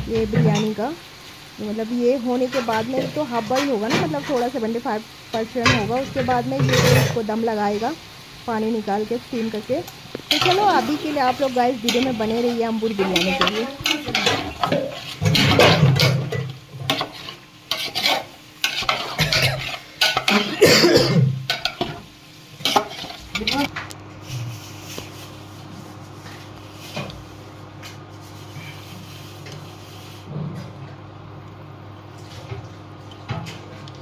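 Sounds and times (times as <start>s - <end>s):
chicken sizzling in a pot: 0.0s - 34.0s
metal spoon scraping a pot: 10.3s - 20.5s.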